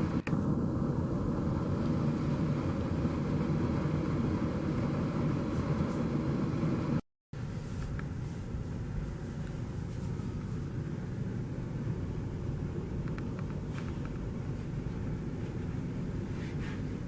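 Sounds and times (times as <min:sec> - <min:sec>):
ship engine low rumble: 0:00.0 - 0:17.0
faint clicks: 0:13.0 - 0:14.3.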